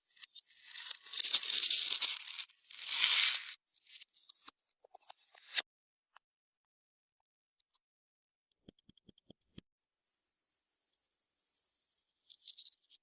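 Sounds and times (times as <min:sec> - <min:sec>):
small clicks and pops: 0:08.6 - 0:09.6.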